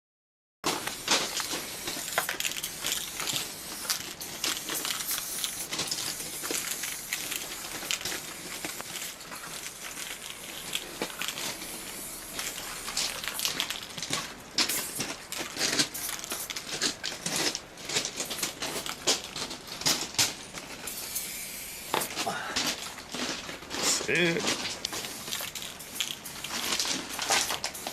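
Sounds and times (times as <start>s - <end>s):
spray paint cans hissing: 0.7s - 27.9s.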